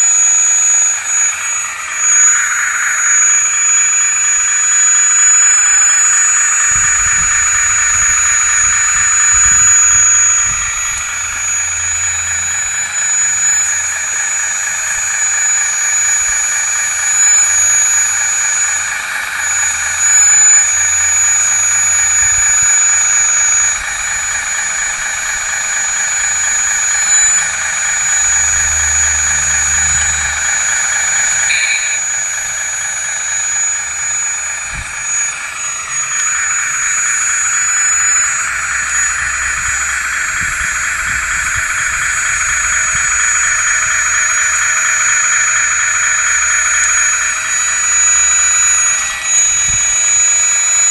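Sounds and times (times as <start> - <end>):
thin high tone: 0.0 - 14.0, 26.6 - 33.3
hydraulic pump whining: 0.0 - 50.9
low rumbling: 27.5 - 32.3.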